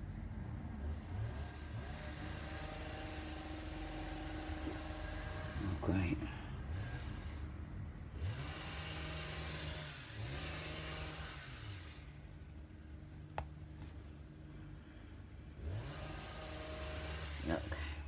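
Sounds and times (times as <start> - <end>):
string trimmer engine revving: 1.0 - 6.0, 6.6 - 12.2, 15.5 - 18.0.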